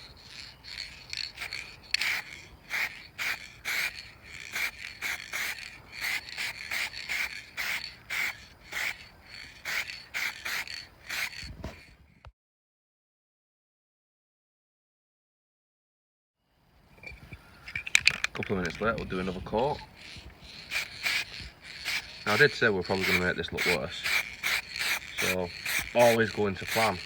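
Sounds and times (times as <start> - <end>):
scratchy dusting strokes: 0.0 - 11.9, 18.5 - 27.0.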